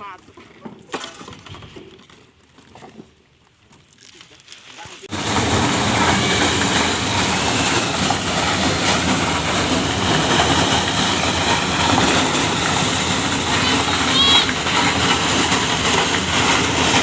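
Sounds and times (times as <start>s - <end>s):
motorised corn thresher running: 4.4s - 17.0s.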